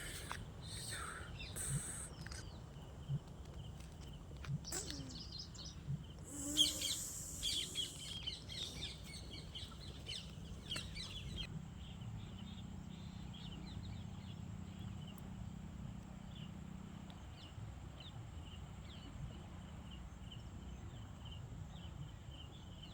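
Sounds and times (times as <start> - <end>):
low steady hum: 0.0 - 16.5
birds chirping and calling: 4.6 - 11.5
harsh bird call: 6.3 - 11.5.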